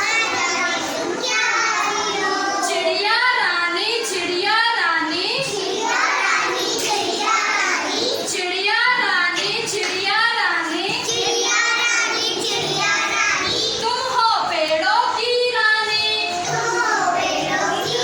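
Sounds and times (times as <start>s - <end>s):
child singing nursery rhyme: 0.0s - 3.2s, 5.1s - 10.0s, 10.6s - 14.2s, 15.8s - 18.0s.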